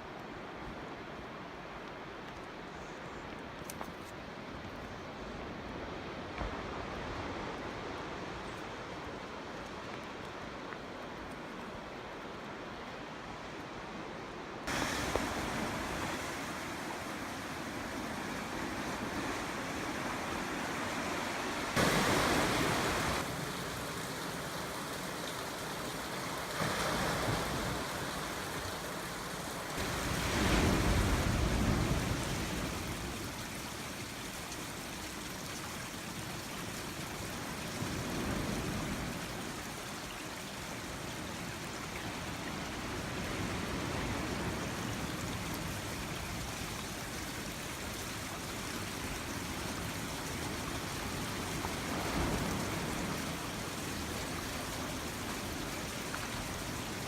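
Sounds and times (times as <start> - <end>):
ocean waves breaking: 14.6 - 33.5, 48.1 - 57.0.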